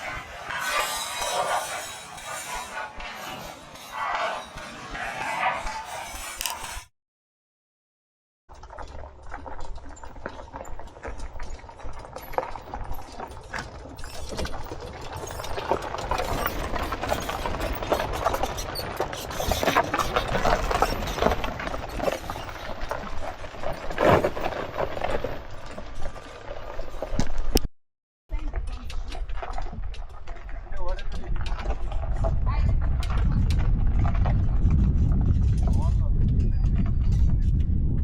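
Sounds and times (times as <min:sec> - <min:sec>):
knocks and rattles: 0:08.5 - 0:27.6.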